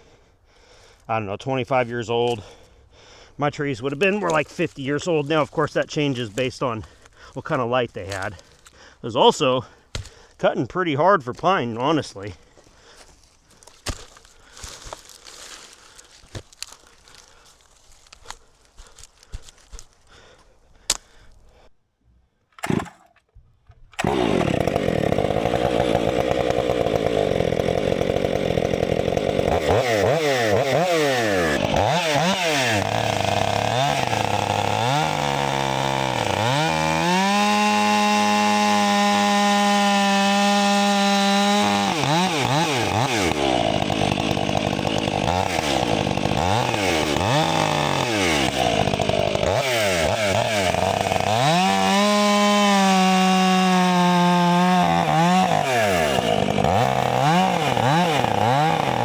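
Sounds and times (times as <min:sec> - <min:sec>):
chainsaw cutting log: 0:02.0 - 0:02.6, 0:03.2 - 0:10.5, 0:11.3 - 0:21.7, 0:22.6 - 0:59.0.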